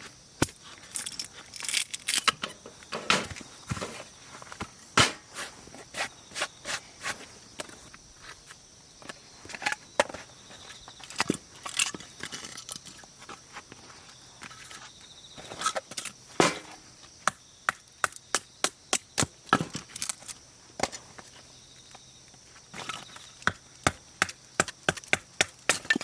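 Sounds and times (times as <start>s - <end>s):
firewood being chopped: 5.0s - 5.5s, 16.4s - 20.2s, 23.4s - 26.0s.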